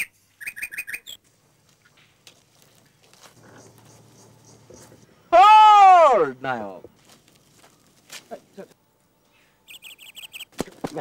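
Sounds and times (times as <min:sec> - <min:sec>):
small bird chirping: 0:00.0 - 0:01.2, 0:03.3 - 0:05.3, 0:09.3 - 0:10.5
faint outdoor hiss: 0:00.0 - 0:11.0.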